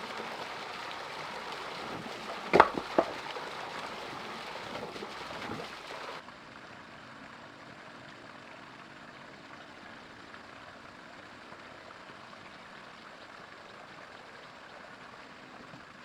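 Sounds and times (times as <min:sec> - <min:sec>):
running water rushing: 0:00.0 - 0:06.2
water drips and splashes: 0:00.0 - 0:14.3.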